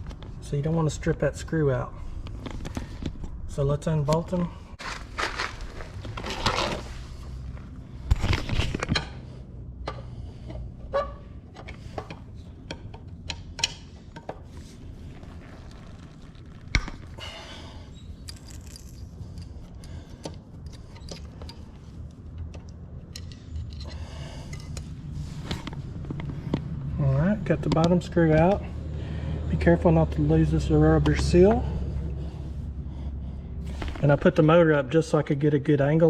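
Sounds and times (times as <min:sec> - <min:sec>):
screwdriver on metal clicks and scrapes: 0:18.2 - 0:25.8.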